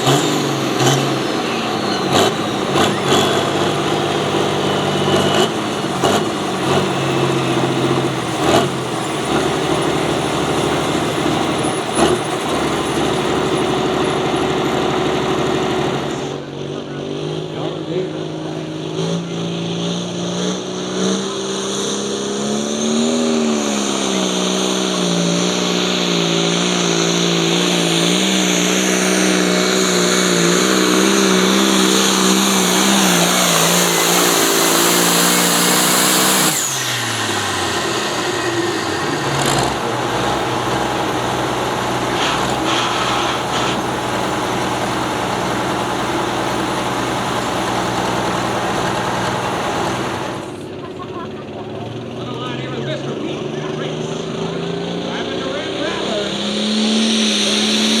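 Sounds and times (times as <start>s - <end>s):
vehicle engine running under load: 0.0s - 58.0s
high whine: 19.2s - 50.8s.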